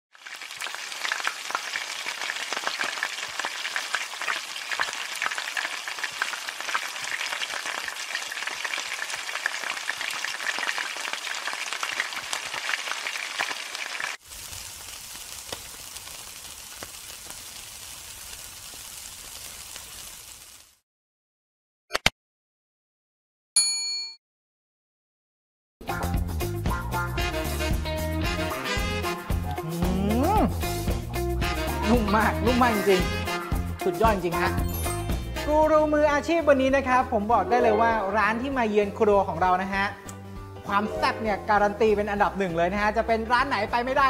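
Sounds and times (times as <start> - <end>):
food frying in hot oil: 0.1 - 20.8.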